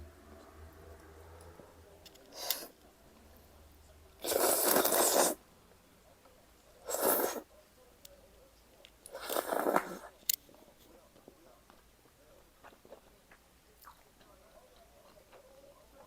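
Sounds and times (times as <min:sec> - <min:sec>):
slurping noodles: 0:02.3 - 0:02.8, 0:04.2 - 0:05.4, 0:06.8 - 0:07.5, 0:09.1 - 0:10.1.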